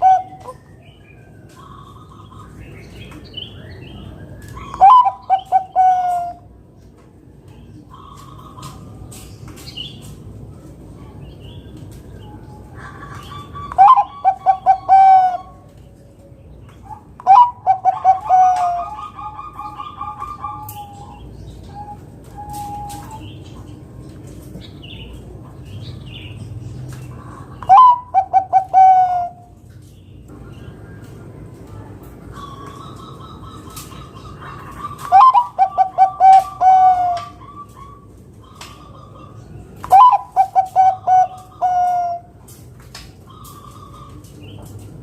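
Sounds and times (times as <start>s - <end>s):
dove cooing: 0.0s - 0.7s, 4.6s - 6.5s, 12.6s - 15.7s, 16.8s - 23.3s, 27.2s - 29.6s, 32.3s - 42.4s.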